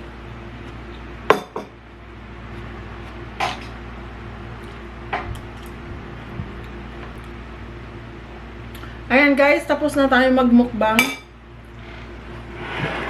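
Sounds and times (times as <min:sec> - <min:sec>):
low hum: 0:10.7 - 0:13.0.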